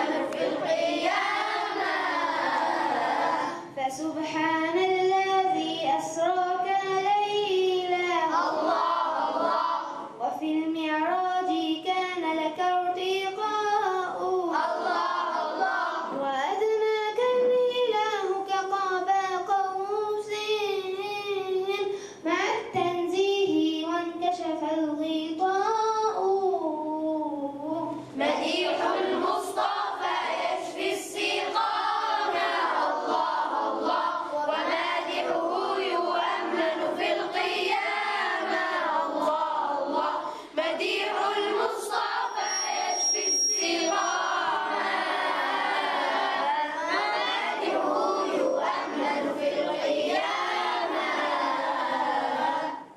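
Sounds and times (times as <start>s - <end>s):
children singing: 0.0s - 4.4s, 5.4s - 10.2s, 13.3s - 16.7s, 27.8s - 52.9s
thin high tone: 42.0s - 44.7s.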